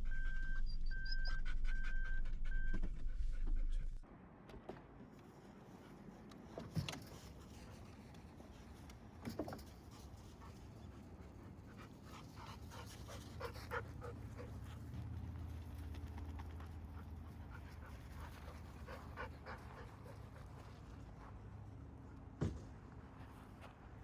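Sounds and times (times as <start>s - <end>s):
dog panting: 10.2s - 21.3s.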